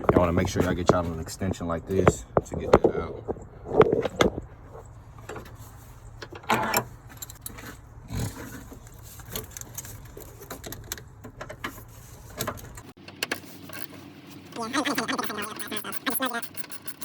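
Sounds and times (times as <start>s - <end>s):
ratchet clicking: 15.1s - 17.0s.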